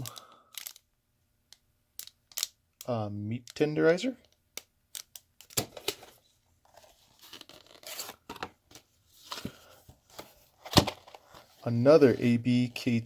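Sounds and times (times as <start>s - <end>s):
packaging tearing and rustling: 6.8s - 8.3s.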